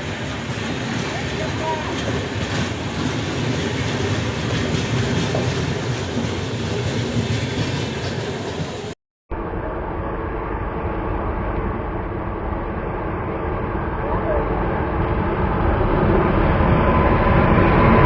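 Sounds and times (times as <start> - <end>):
train wheels clickety-clack: 0.0 - 9.0.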